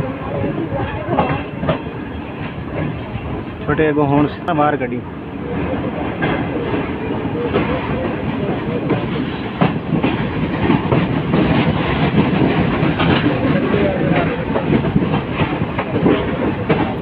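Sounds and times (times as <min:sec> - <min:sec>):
train wheels rumbling on rails: 0:00.0 - 0:17.0
wheels clacking over rail joints: 0:05.5 - 0:17.0.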